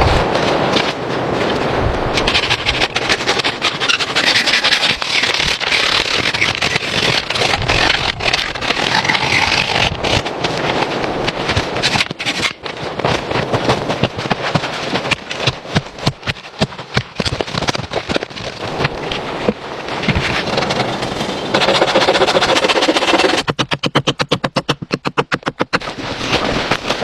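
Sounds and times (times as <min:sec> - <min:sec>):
cracks knocks and scraping: 0:00.0 - 0:27.0
fast rasping strokes: 0:02.2 - 0:10.8, 0:20.1 - 0:27.0.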